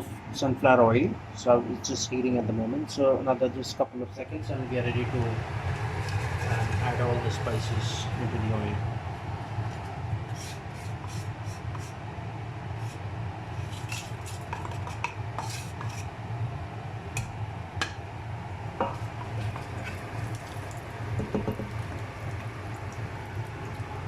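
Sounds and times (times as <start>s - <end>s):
steady low hum: 0.0s - 24.0s
light sizzle of oil: 5.1s - 8.2s, 12.8s - 16.1s, 17.2s - 24.0s
metal spoon scraping cooking pot: 13.6s - 16.1s.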